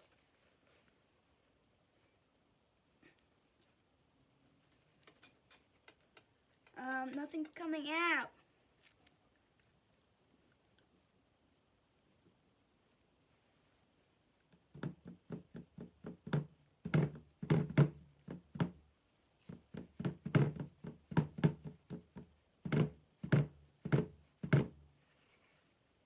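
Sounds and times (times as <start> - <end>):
plastic container tapped and shaken: 19.4 - 24.8.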